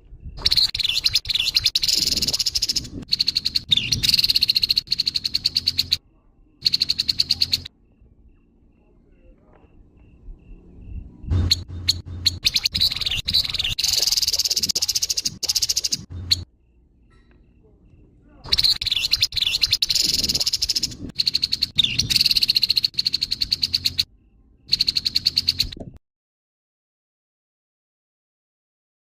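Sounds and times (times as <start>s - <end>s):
bird harsh rattling calls: 0.4s - 6.0s, 6.6s - 7.7s, 11.3s - 16.4s, 18.5s - 24.1s, 24.7s - 25.8s.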